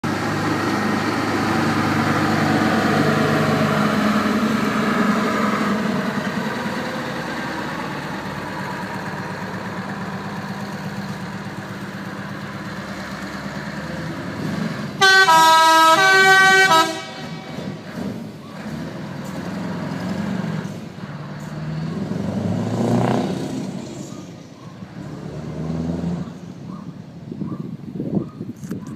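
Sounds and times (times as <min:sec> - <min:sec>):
truck diesel engine driving by: 0:00.0 - 0:27.8
truck air horn blast: 0:15.0 - 0:17.6.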